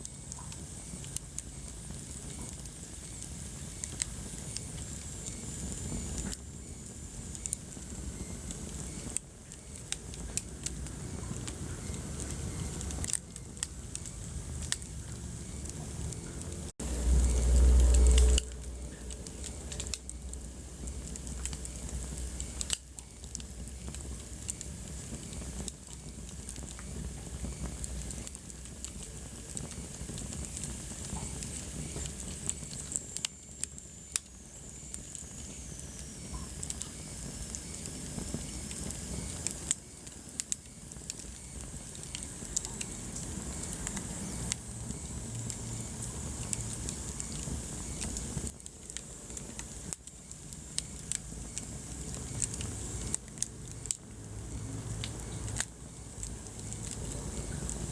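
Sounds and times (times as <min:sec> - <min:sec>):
sharp pops of fire: 0:00.0 - 0:57.9
wood fire crackling: 0:00.0 - 0:57.9
loud low rumble: 0:16.3 - 0:21.1.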